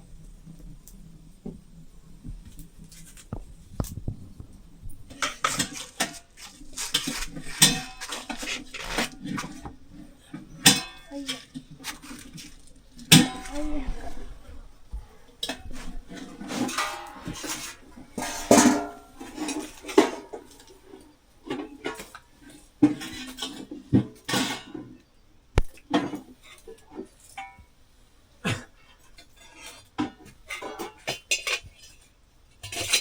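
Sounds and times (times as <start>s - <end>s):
metal dishes clattering: 3.8s - 22.2s, 29.2s - 32.0s.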